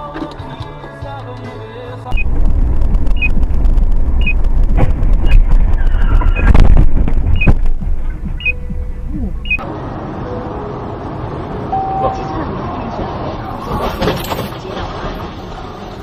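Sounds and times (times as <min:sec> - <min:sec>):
low vehicle rumble: 0:02.0 - 0:16.0
high-pitched warning beep: 0:03.2 - 0:03.4, 0:07.4 - 0:07.6, 0:08.4 - 0:09.6, 0:11.7 - 0:12.3.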